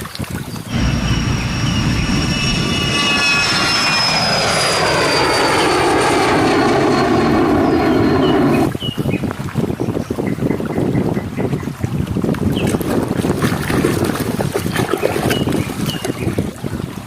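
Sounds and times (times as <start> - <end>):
airplane engine passing by: 0.7 - 8.8.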